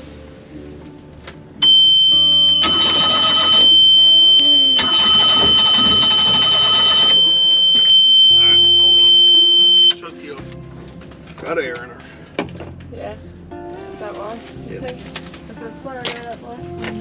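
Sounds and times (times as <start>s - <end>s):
alarm steady high beep: 1.6s - 10.0s
starter cranking engine: 2.5s - 3.8s, 4.6s - 7.2s.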